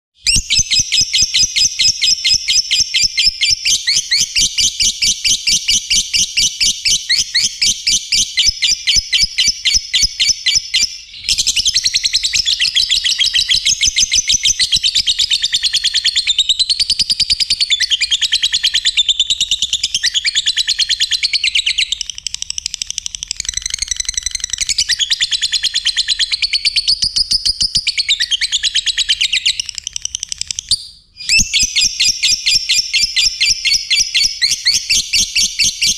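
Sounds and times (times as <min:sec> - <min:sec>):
bird chirping and warbling: 0:00.2 - 0:35.9
bird chattering trill: 0:00.3 - 0:35.9.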